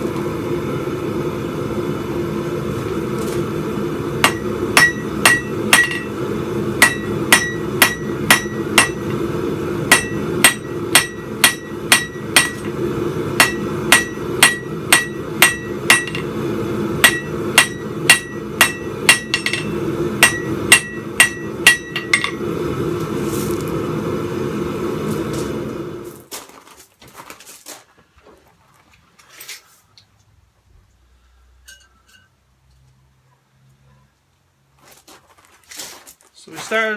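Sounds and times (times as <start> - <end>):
steady low rush: 0.0 - 26.1
hammer ringing on anvil: 4.2 - 6.2, 6.8 - 9.2, 9.9 - 12.8, 13.4 - 16.4, 17.0 - 22.5.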